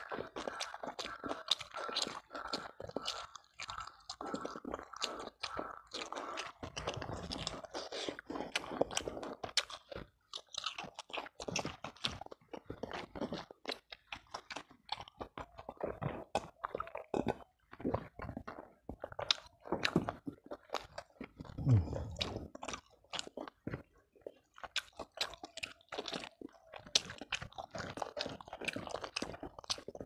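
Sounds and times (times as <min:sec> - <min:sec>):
chewing and crunching food: 0:00.0 - 0:30.0
mouth clicks: 0:20.8 - 0:22.8.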